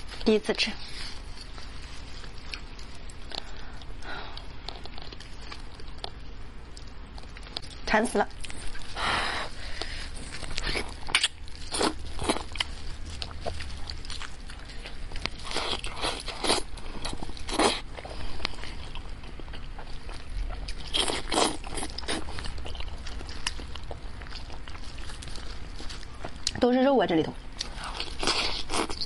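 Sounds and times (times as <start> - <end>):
chewing and biting meat: 9.6 - 26.6, 27.6 - 29.0.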